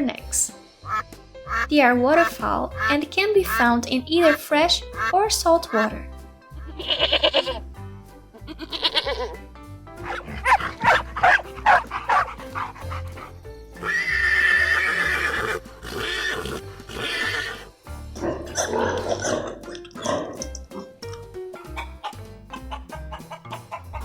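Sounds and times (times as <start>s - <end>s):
background music: 0.0s - 24.0s
farm animal calls: 6.6s - 7.6s, 8.5s - 9.4s, 10.0s - 17.7s, 21.6s - 24.0s.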